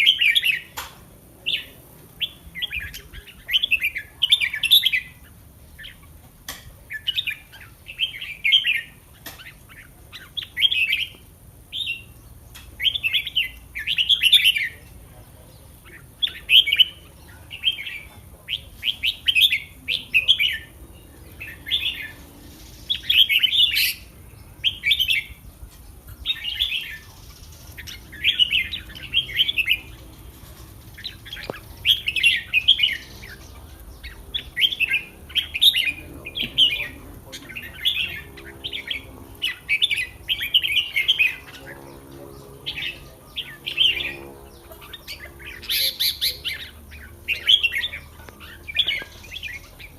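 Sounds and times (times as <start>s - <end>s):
bulbul singing warbled phrases: 0.0s - 6.2s, 6.8s - 49.9s.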